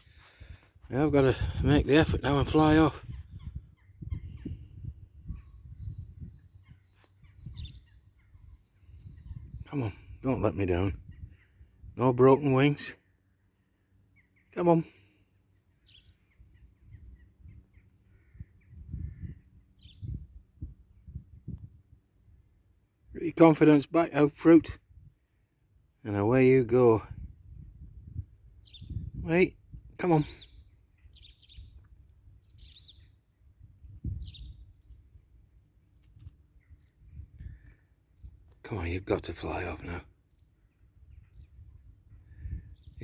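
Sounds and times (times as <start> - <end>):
faint bird chirps: 3.1 - 9.6, 13.0 - 22.3, 28.6 - 29.2, 30.1 - 38.7.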